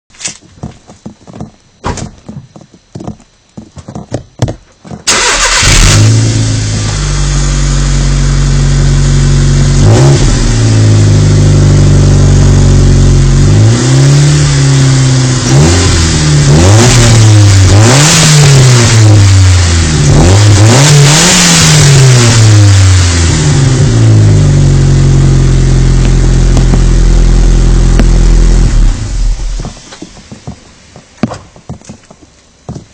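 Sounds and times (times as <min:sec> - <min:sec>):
car engine idling and revving: 0:05.1 - 0:30.6.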